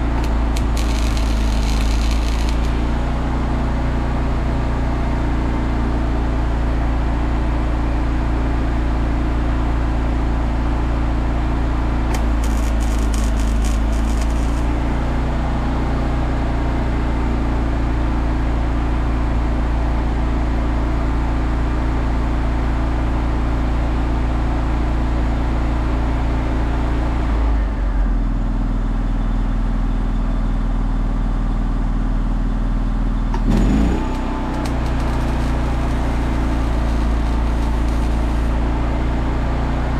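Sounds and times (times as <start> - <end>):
engine running: 0.0 - 5.2, 11.4 - 16.0, 33.2 - 39.9.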